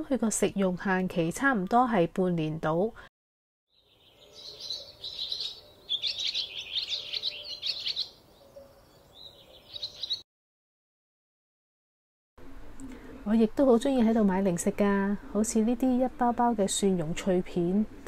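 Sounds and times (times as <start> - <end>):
small birds chirping: 3.7 - 10.2.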